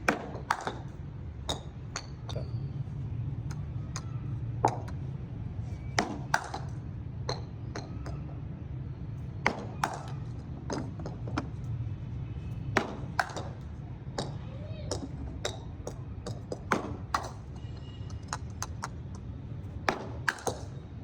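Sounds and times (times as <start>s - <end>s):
cricket ball hitting bat: 0.0s - 1.8s, 5.8s - 8.2s, 9.4s - 11.5s, 12.6s - 13.6s, 16.5s - 17.5s, 19.8s - 20.8s.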